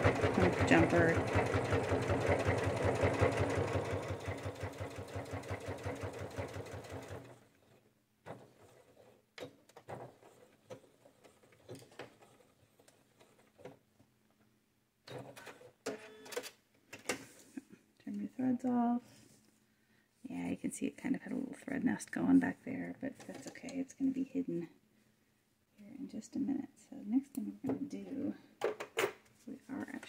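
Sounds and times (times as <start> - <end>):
sewing machine stitching: 0.0 - 13.8.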